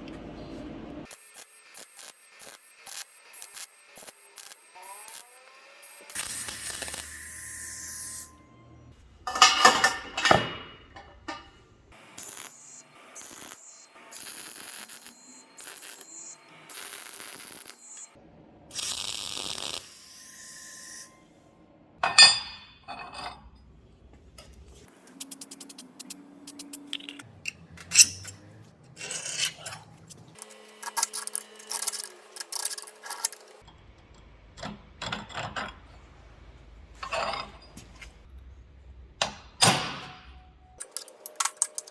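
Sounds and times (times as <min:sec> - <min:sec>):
metal clinks and knocks: 0:09.3 - 0:11.6.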